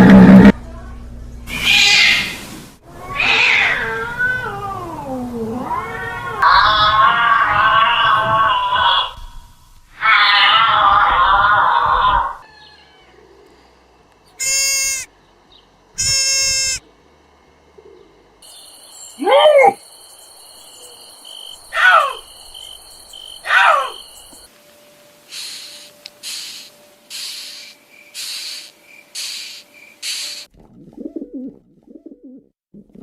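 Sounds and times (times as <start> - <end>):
short pitched animal calls: 14.4 - 15.1, 16.0 - 16.8
short rasping calls: 14.4 - 15.1, 16.0 - 16.9, 25.3 - 30.5
falling bird calls: 17.7 - 24.5, 25.3 - 30.5
steady high trill: 18.4 - 24.5.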